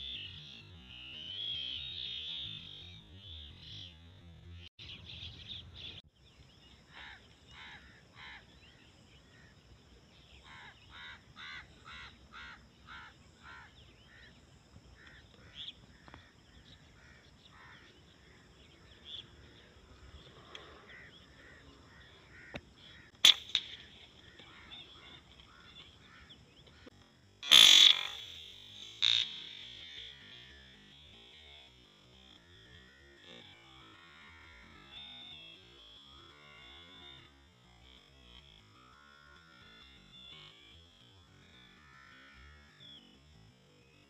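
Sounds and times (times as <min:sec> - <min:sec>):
birds calling: 0:04.8 - 0:31.4
sharp crack: 0:22.6 - 0:24.5, 0:27.4 - 0:30.0.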